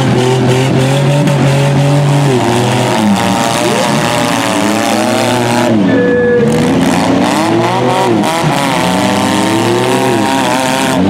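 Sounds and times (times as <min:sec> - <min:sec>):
van engines revving: 0:00.0 - 0:11.0
steady tone: 0:02.9 - 0:07.2.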